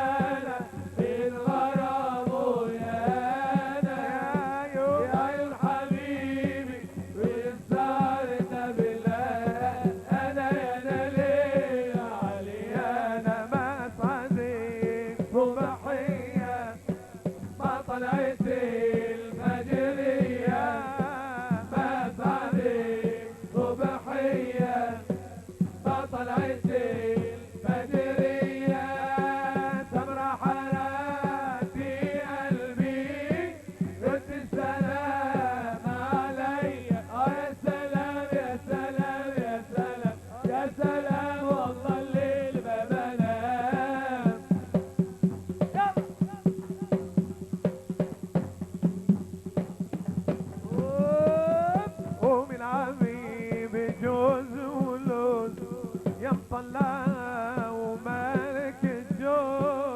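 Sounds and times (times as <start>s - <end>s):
dense drum beat: 38.8s - 58.2s.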